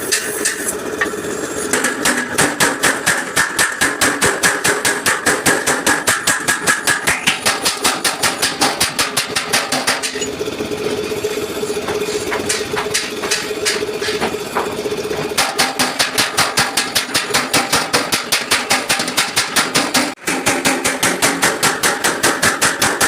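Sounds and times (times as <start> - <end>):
steady machine hum: 0.0 - 23.0
scattered knocks: 11.8 - 23.0.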